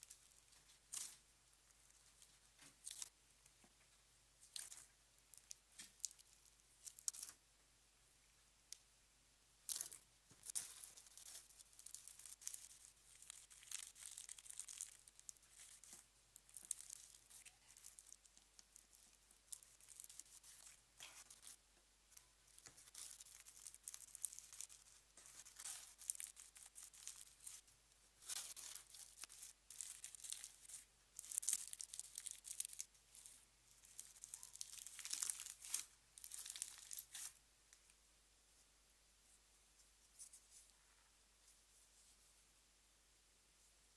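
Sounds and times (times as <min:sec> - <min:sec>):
slime crackling and tearing: 0:09.7 - 0:21.6, 0:22.5 - 0:27.6, 0:28.2 - 0:37.4.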